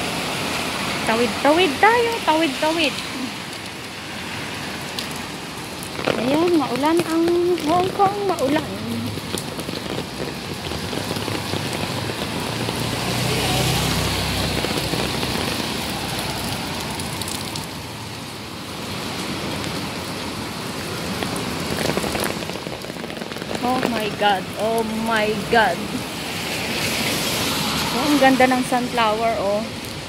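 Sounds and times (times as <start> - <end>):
rain hiss: 0.0 - 30.0
wet traffic: 0.0 - 30.0
vehicle passing: 4.1 - 17.7, 24.0 - 29.6.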